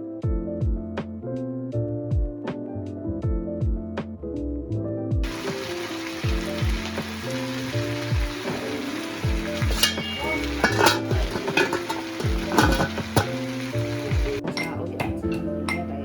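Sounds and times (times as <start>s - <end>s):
background music: 0.0s - 16.0s
food sizzling in hot oil: 5.2s - 14.4s
utensil clinking in pan: 5.2s - 15.9s.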